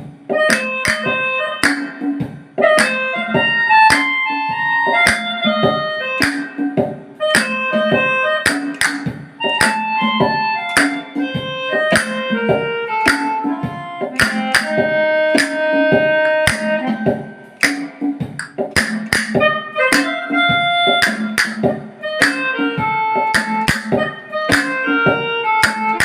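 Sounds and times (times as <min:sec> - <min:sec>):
melodica melody: 0:00.3 - 0:17.6, 0:19.4 - 0:26.0
percussive hits: 0:04.9 - 0:20.1, 0:20.9 - 0:22.4, 0:23.2 - 0:26.0.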